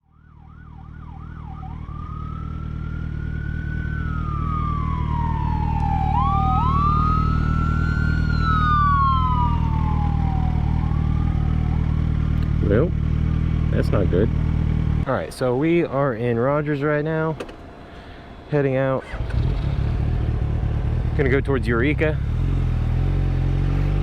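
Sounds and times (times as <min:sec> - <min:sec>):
emergency siren yelp and wail: 0:00.0 - 0:12.4
second siren wailing: 0:00.0 - 0:12.4
low engine rumble: 0:00.4 - 0:24.0.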